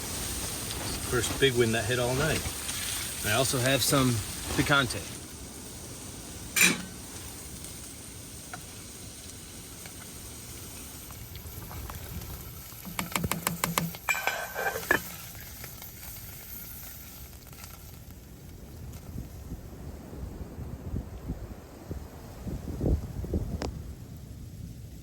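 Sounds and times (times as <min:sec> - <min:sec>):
pot sizzling and simmering: 0:00.0 - 0:20.1
stirring clicks and clatter: 0:11.7 - 0:16.2.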